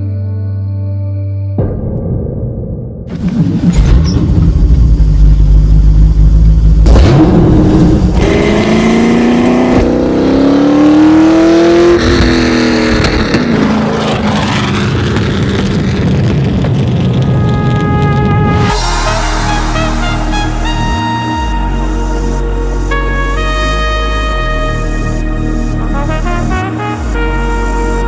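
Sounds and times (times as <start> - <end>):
racing car engine revving: 3.1 - 15.9.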